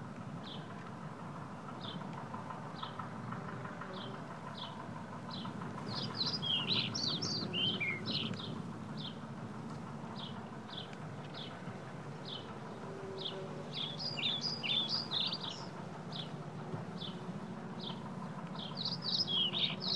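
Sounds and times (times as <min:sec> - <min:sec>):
low background rumble: 0:00.0 - 0:19.9
bird twittering: 0:05.9 - 0:09.1, 0:13.2 - 0:16.3, 0:18.6 - 0:19.9.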